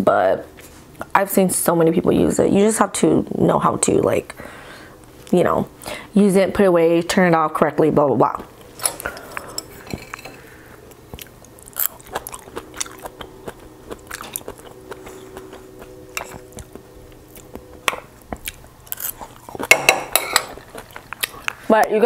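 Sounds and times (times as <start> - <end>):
crunchy chewing: 8.6 - 19.8, 20.4 - 21.7.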